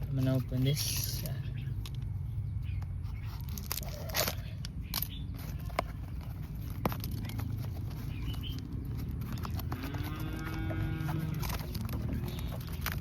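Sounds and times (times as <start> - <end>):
packaging crackling: 3.2 - 13.0.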